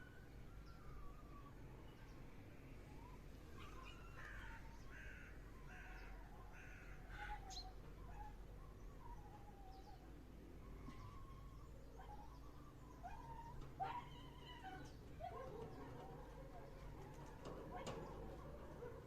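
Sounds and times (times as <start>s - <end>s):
crow cawing: 4.2s - 7.4s.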